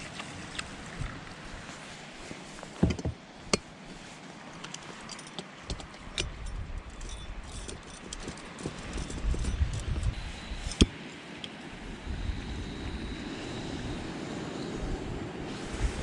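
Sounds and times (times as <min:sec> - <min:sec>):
sharp knocks and clinks: 0:04.7 - 0:10.1.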